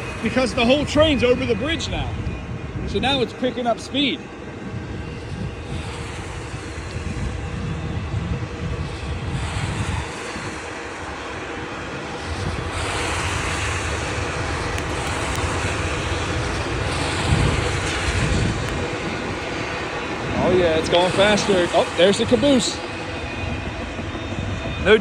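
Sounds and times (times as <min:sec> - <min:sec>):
freight train wheels rumbling on rail: 0:00.0 - 0:25.0.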